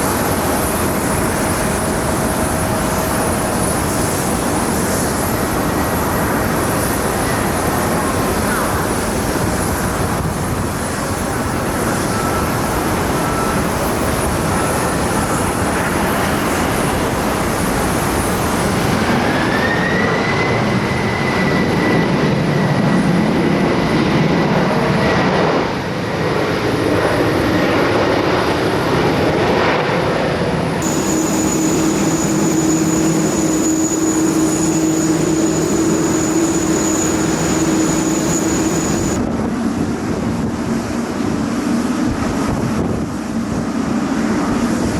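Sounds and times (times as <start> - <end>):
engine whine: 0.0 - 44.9
jet engines running: 0.0 - 44.9
steady low hum: 30.8 - 39.2.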